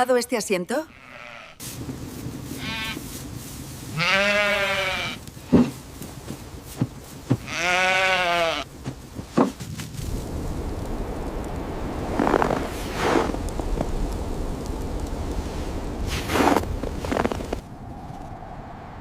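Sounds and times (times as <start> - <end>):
animal bleating: 0.8 - 1.6, 2.6 - 3.0, 3.9 - 5.2, 7.4 - 8.7.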